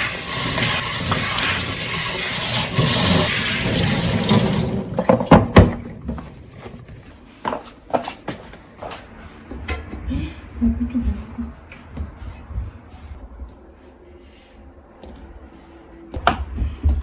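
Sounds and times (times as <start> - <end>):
water rushing loudly: 0.0 - 5.0.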